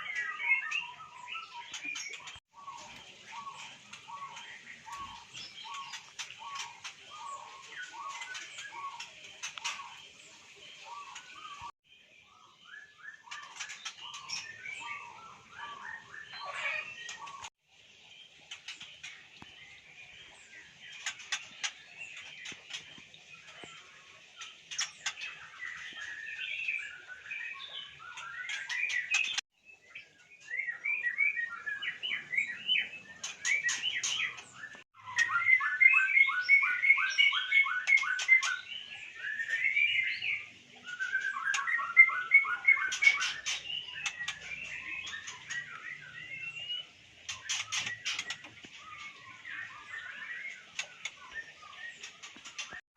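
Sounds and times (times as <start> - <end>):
bird singing whistled phrases: 35.0 - 46.9.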